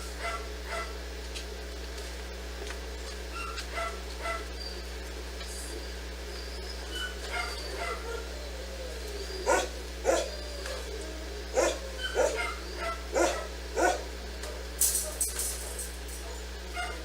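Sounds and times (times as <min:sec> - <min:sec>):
steady low hum: 0:00.0 - 0:17.0
dog barking: 0:00.2 - 0:01.0, 0:03.4 - 0:04.5, 0:07.2 - 0:08.3, 0:09.4 - 0:17.0.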